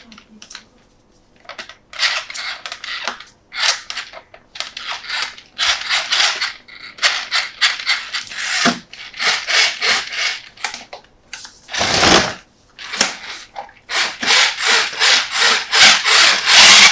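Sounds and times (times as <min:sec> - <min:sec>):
toy packaging rustling and scraping: 0:04.8 - 0:10.6, 0:11.4 - 0:16.9.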